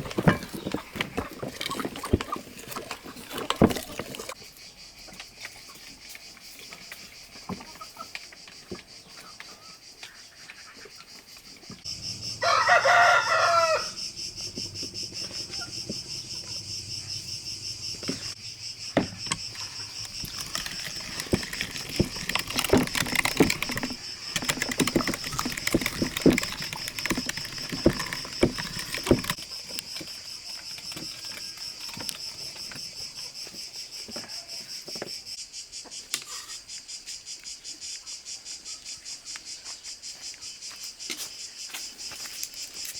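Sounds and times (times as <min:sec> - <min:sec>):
irregular clicks and knocks: 0:00.0 - 0:04.4, 0:18.9 - 0:33.2
crickets trilling: 0:00.0 - 0:42.9
rooster crowing: 0:12.3 - 0:14.2.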